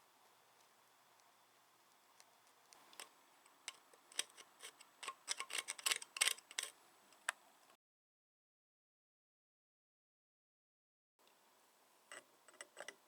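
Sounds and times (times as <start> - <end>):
light sharp clicks and taps: 0.5 - 7.4.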